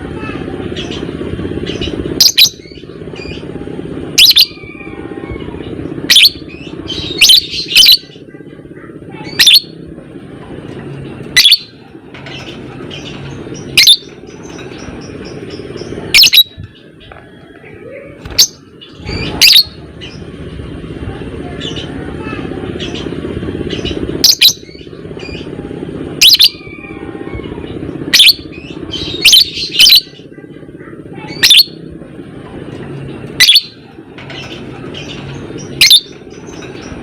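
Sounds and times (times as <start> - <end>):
bird shrill calls: 9.3 - 9.7, 12.4 - 14.1, 15.8 - 16.6, 18.3 - 20.2, 26.2 - 27.0, 28.1 - 30.2, 31.3 - 31.8, 33.4 - 36.6.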